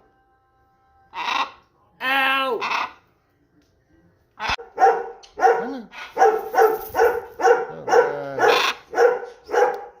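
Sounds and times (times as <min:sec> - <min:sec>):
short dog-like barks: 0:04.8 - 0:10.0.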